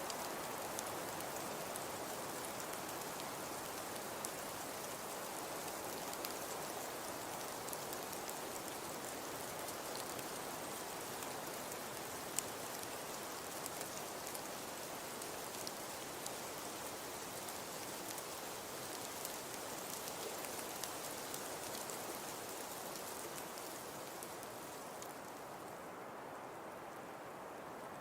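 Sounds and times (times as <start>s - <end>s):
wood fire crackling: 0.2s - 6.6s, 18.9s - 25.6s.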